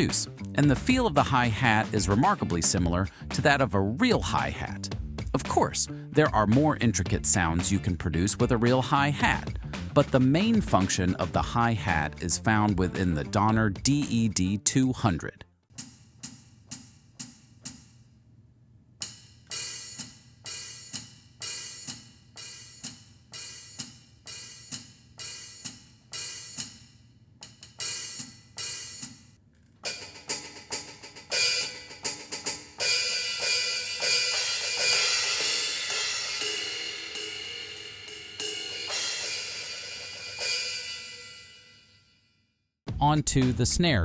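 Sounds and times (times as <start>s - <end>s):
electronic hi-hat strikes: 0.0s - 13.1s, 19.0s - 29.2s, 29.9s - 41.7s
cymbal wash ringing: 32.8s - 42.1s.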